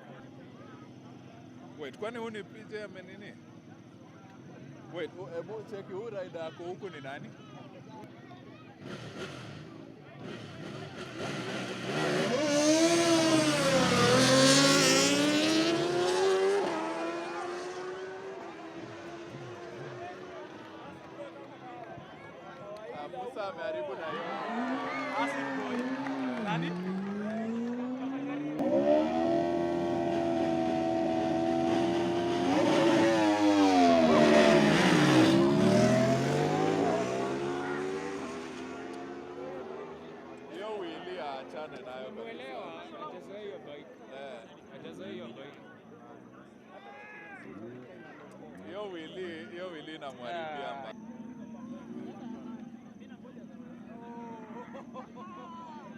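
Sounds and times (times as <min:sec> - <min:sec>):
superbike engines screaming past: 0:08.8 - 0:20.3, 0:23.9 - 0:40.2.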